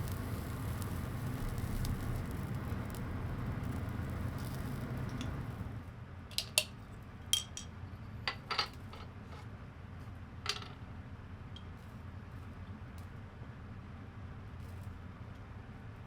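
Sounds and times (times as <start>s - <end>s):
low steady rumble: 0.0s - 6.0s
tableware clinking: 7.4s - 7.7s, 8.3s - 9.0s.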